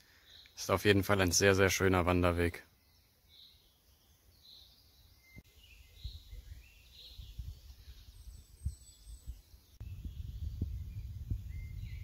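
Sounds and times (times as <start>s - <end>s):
songbird calls: 2.7s - 12.0s.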